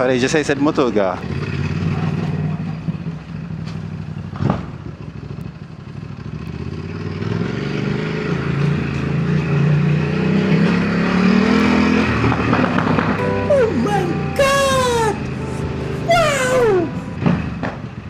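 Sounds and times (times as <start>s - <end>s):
motorcycle engine accelerating: 1.1s - 13.2s.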